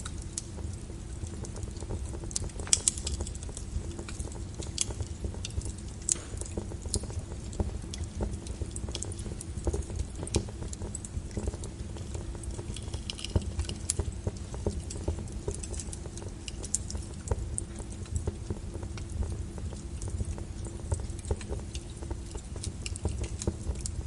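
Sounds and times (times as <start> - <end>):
logs crackling in fireplace: 0.0 - 24.0
low steady rumble: 0.0 - 24.0.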